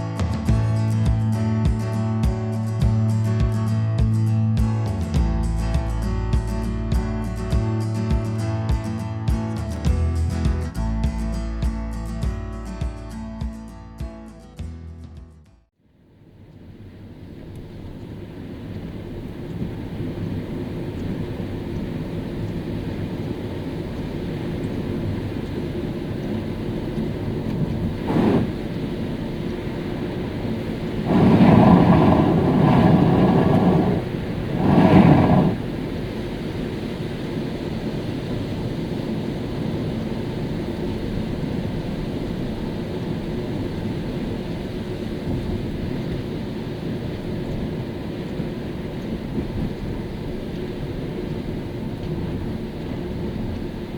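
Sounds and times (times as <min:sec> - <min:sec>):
road noise: 0:16.0 - 0:53.9
car driving rumble and hiss: 0:16.2 - 0:53.9.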